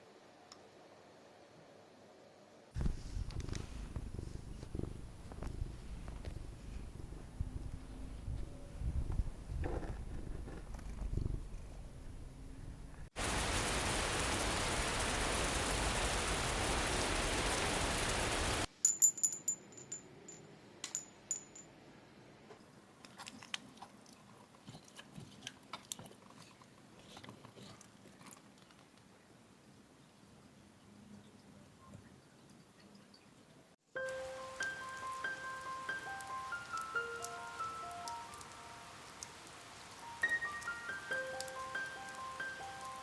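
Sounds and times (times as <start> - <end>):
cat purring: 2.8 - 13.1
light rustles: 2.8 - 13.1
loud steady hiss: 11.2 - 18.7, 34.1 - 43.0.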